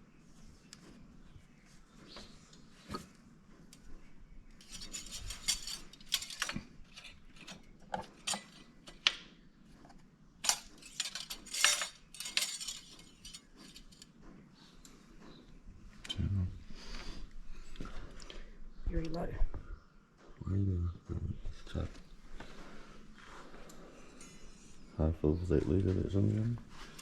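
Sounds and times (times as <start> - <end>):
hard objects clinking and rattling: 4.6 - 9.0, 10.4 - 14.1.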